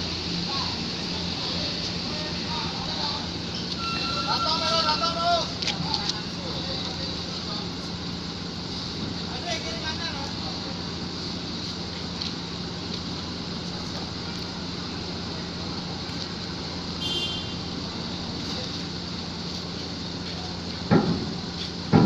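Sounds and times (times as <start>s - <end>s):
constant low hum: 0.0s - 22.0s
truck engines running: 0.0s - 22.0s
brief high squeal: 3.7s - 5.0s.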